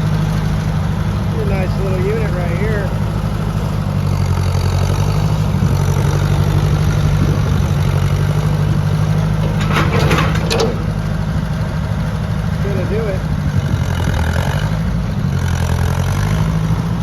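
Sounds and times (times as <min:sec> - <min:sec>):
tractor engine running: 0:00.0 - 0:17.0
rattly clatter: 0:07.6 - 0:13.3.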